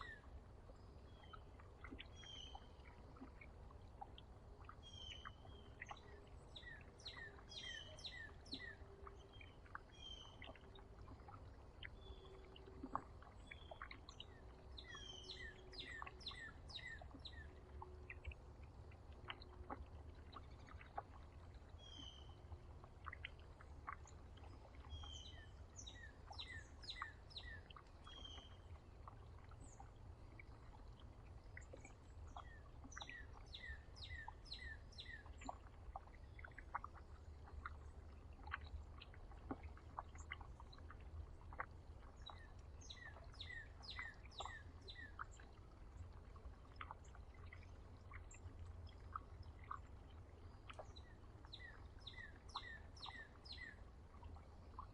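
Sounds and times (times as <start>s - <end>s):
faint low rumble: 0.0s - 54.9s
small songbirds chirping: 0.0s - 54.9s.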